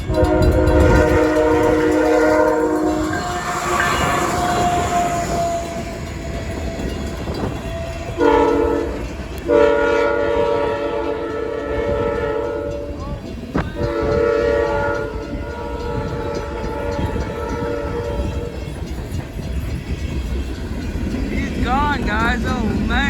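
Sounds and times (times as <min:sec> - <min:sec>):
locomotive air horn: 0:00.0 - 0:18.9
passing train rumble: 0:00.0 - 0:23.0.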